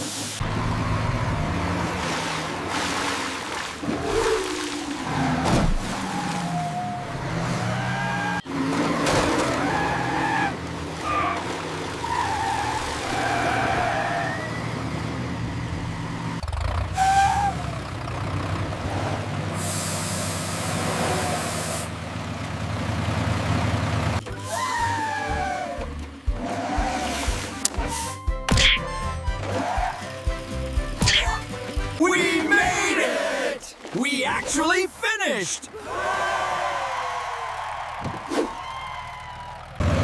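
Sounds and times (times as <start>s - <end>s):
heavy vehicle engines straining: 0.0s - 40.0s
hiss: 19.6s - 20.5s.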